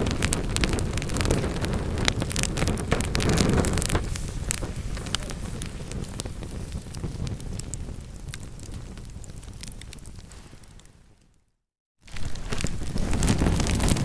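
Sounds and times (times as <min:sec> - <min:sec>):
sharp pops of burning logs: 0:00.0 - 0:10.9
low rush of burning logs: 0:00.0 - 0:11.3, 0:12.0 - 0:14.0
wood fire crackling: 0:00.0 - 0:11.3, 0:12.0 - 0:14.0.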